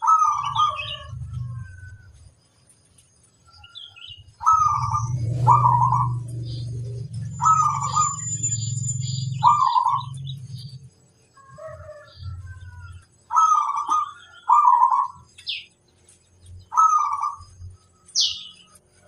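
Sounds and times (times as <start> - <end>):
dove cooing: 0.0 - 2.2, 4.4 - 10.7, 11.4 - 15.3, 16.7 - 17.5
small birds chirping: 0.0 - 19.0.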